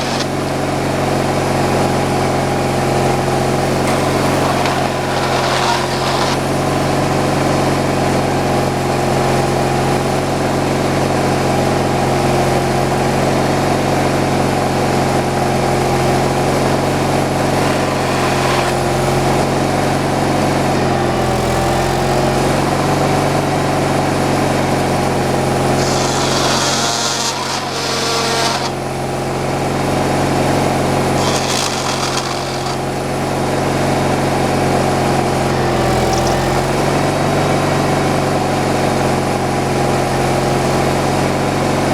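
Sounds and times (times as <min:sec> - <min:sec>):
chainsaw cutting wood hiss: 0:00.0 - 0:00.8, 0:03.2 - 0:06.9, 0:25.1 - 0:29.3, 0:30.3 - 0:33.6.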